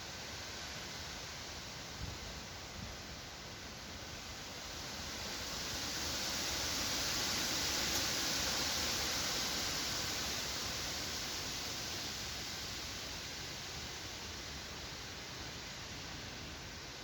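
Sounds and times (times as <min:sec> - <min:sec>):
wind through forest trees: 0:00.0 - 0:17.0.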